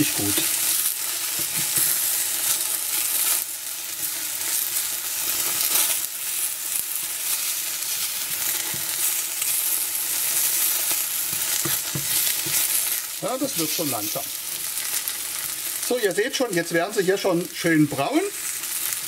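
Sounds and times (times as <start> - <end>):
mushrooms sizzling in oil: 0.0 - 19.0
wooden spatula scraping a pan: 10.3 - 15.0.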